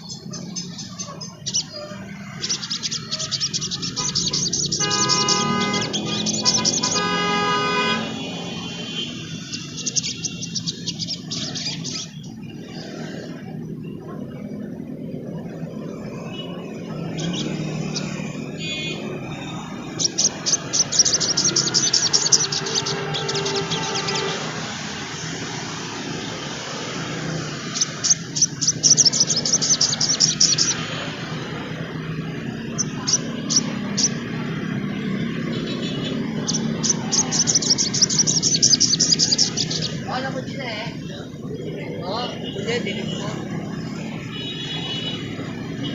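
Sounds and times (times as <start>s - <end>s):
bird twittering: 0.0s - 7.1s, 8.2s - 14.0s, 16.1s - 24.7s, 27.1s - 31.4s, 32.2s - 42.4s
low traffic rumble: 0.0s - 45.9s
vehicle horn: 4.0s - 10.5s, 18.4s - 19.4s, 21.8s - 25.0s, 44.3s - 45.9s.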